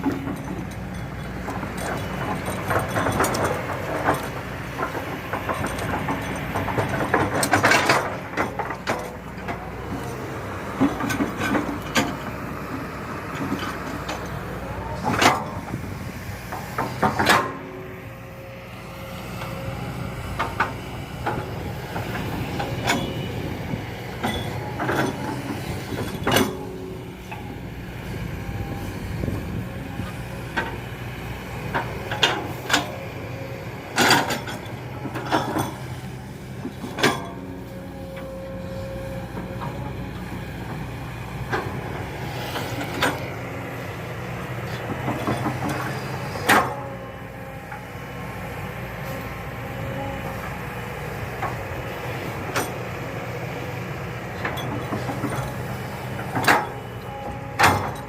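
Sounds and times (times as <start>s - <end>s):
metallic clanks and knocks: 0.0s - 9.6s, 13.3s - 17.9s, 20.2s - 27.6s, 36.6s - 37.5s, 44.6s - 47.0s, 54.4s - 58.0s
excavator diesel engine running: 0.0s - 58.0s.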